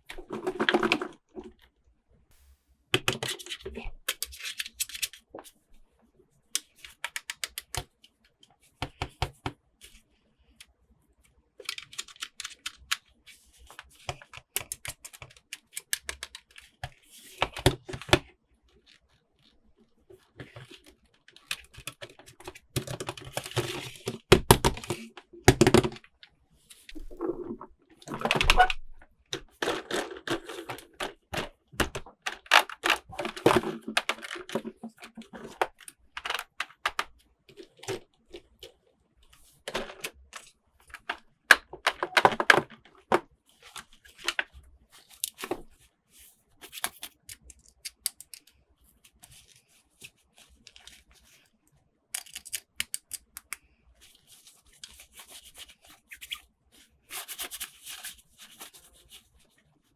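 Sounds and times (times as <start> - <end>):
plastic clicks and taps: 46.9 - 48.5, 52.2 - 53.6.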